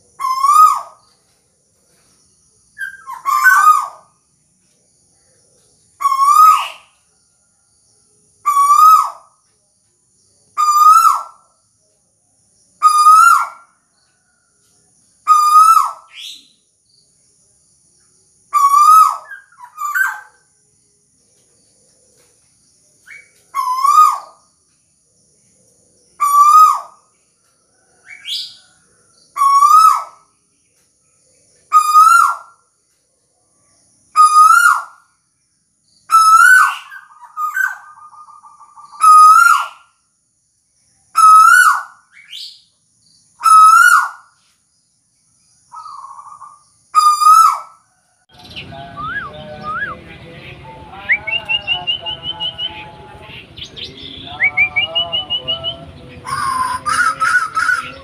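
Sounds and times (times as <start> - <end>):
bird whistling rising note: 48.7 - 50.0.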